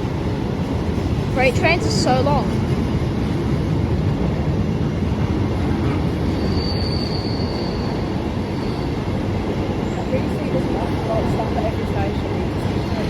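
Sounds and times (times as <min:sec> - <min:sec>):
train wheels rumbling on rail: 0:00.0 - 0:13.0
thin wheel squeal: 0:06.4 - 0:08.0.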